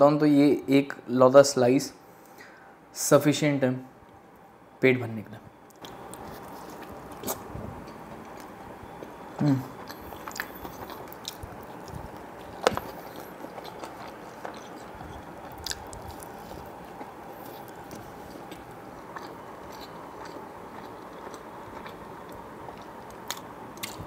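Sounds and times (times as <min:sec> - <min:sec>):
wet chewing: 0:05.7 - 0:24.0
biting into pizza crust: 0:08.2 - 0:24.0.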